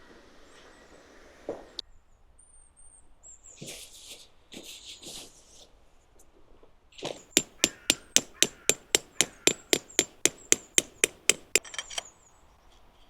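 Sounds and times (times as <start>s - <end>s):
sharp knock: 7.2s - 11.9s.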